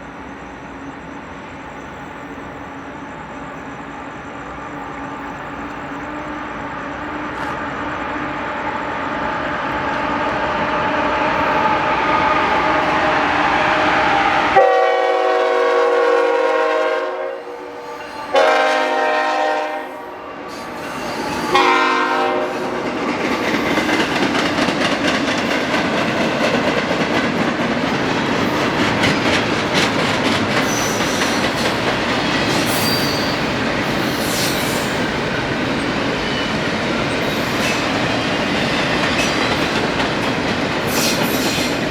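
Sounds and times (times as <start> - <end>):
diesel locomotive engine: 0.0 - 41.9
train air horn blasts: 12.3 - 22.8
train wheel clatter: 20.5 - 41.9.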